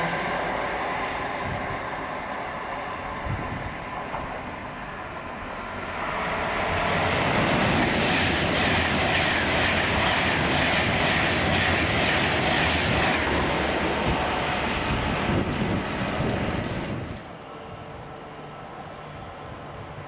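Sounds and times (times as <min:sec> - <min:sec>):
train passing at speed: 0:00.0 - 0:20.0.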